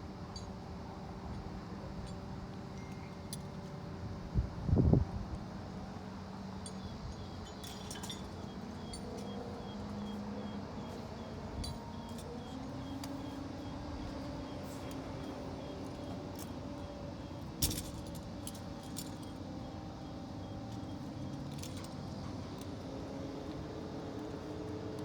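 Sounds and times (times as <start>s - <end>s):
mechanical hum: 0.0s - 25.0s
light metallic clinks: 6.6s - 19.4s, 20.6s - 22.7s.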